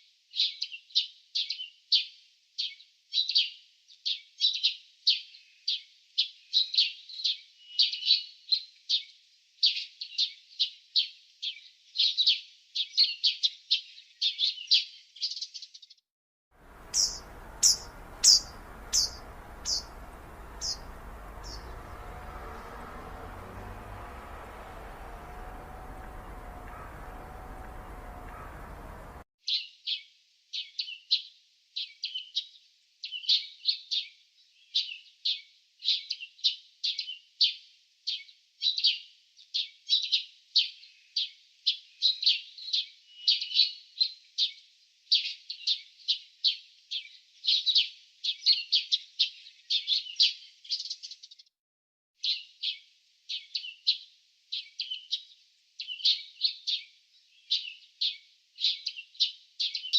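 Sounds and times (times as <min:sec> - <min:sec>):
small birds chirping: 0:16.6 - 0:29.2, 0:54.6 - 0:59.9.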